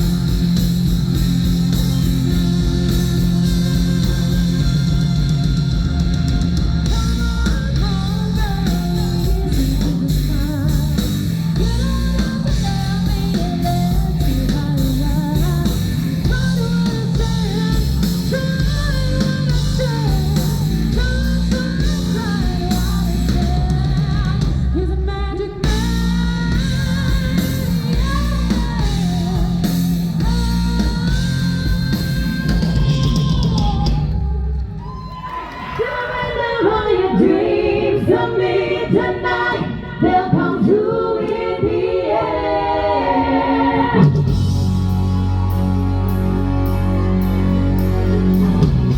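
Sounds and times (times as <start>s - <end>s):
live rock band playing: 0.0s - 24.8s, 25.6s - 34.5s, 43.9s - 48.9s
person singing: 2.0s - 34.6s.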